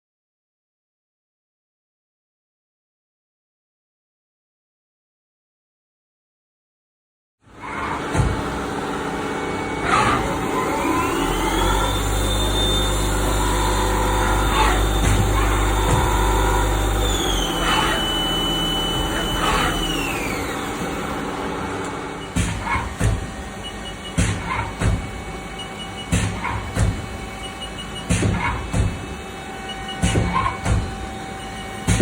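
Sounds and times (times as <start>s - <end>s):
lathe machine hum: 7.6s - 31.9s
spindle whine: 9.4s - 32.0s.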